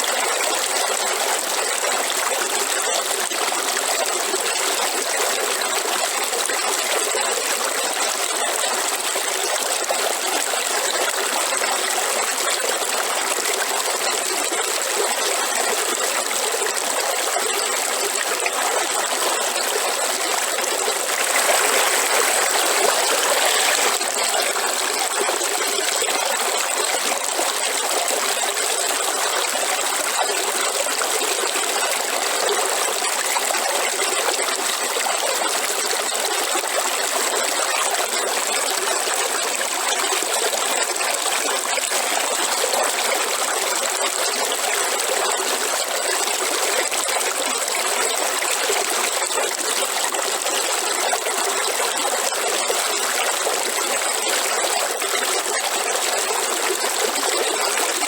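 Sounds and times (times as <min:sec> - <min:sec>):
waterfall rushing: 0:21.1 - 0:24.2.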